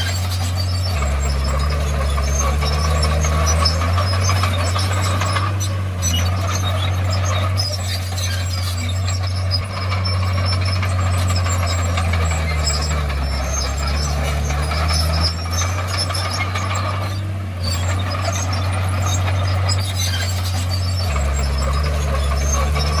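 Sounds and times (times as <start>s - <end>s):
bulldozer diesel engine under work: 0.0s - 23.0s.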